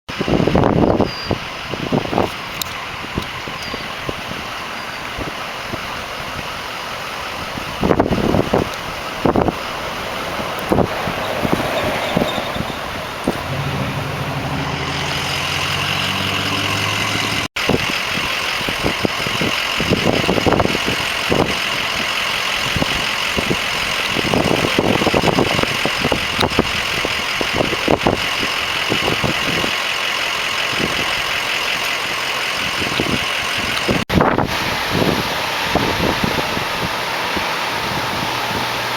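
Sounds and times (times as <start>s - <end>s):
high turbine whine: 0.1s - 38.9s
low rotor thumping: 10.2s - 17.5s
helicopter low drone: 12.4s - 38.9s.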